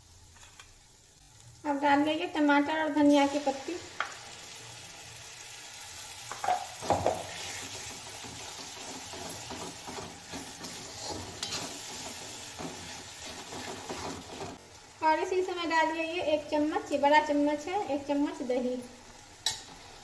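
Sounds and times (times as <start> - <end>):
paste sizzling in hot oil: 0.0 - 20.0
metal spatula scraping pan: 7.2 - 14.6.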